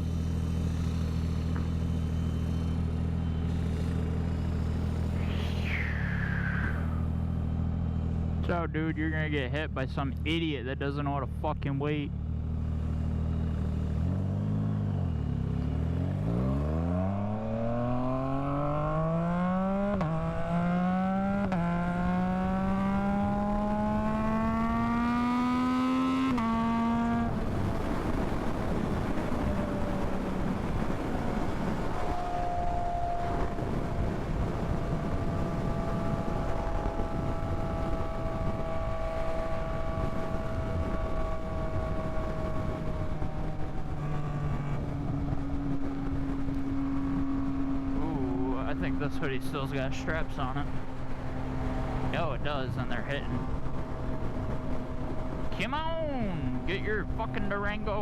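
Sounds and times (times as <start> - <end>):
motorcycle engine accelerating: 0.0 - 10.4, 11.3 - 58.0
wind rushing: 5.1 - 7.3.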